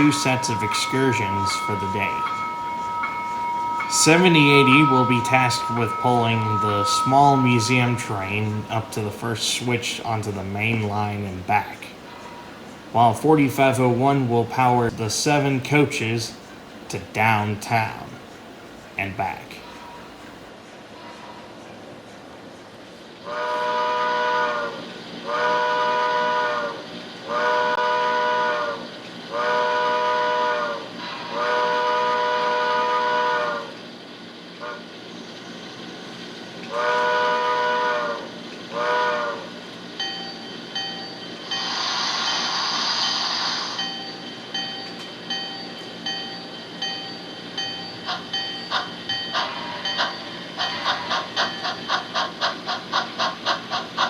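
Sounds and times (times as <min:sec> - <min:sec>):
model train chime whistle: 0:00.0 - 0:14.9, 0:23.3 - 0:28.8, 0:29.4 - 0:33.8, 0:36.7 - 0:52.2
locomotive exhaust chuffs: 0:00.0 - 0:20.5, 0:36.1 - 0:54.0
steam hiss: 0:41.2 - 0:45.8.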